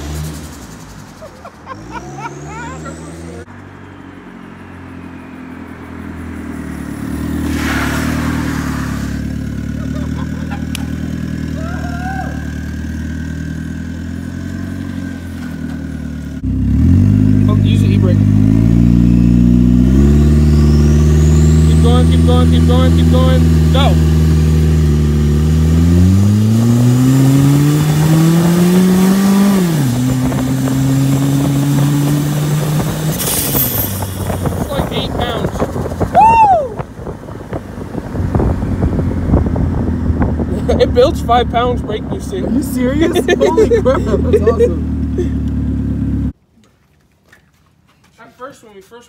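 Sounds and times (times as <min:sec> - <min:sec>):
turbocharged engine under load: 0:00.0 - 0:46.4.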